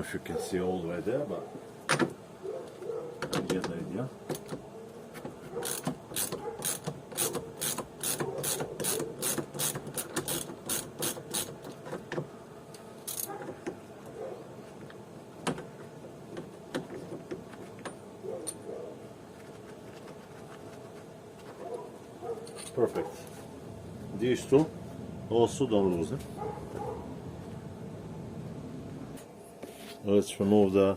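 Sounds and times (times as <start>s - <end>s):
ratchet wrench clicking: 5.6s - 11.6s.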